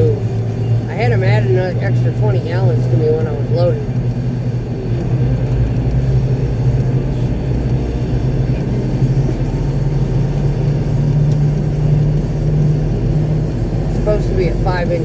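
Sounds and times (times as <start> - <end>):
diesel truck engine drone: 0.0 - 15.0.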